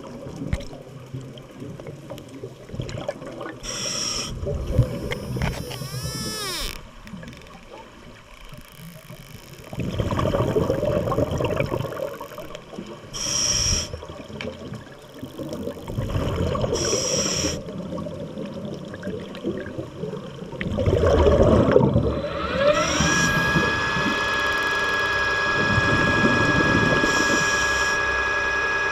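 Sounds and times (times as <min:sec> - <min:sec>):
underwater bubble bursts: 0:00.0 - 0:06.0, 0:09.7 - 0:13.1, 0:13.7 - 0:22.6
regulator hissing inhales: 0:03.6 - 0:04.4, 0:13.2 - 0:14.0, 0:16.8 - 0:17.6
rising tone into steady whine: 0:04.6 - 0:06.9, 0:22.1 - 0:28.9.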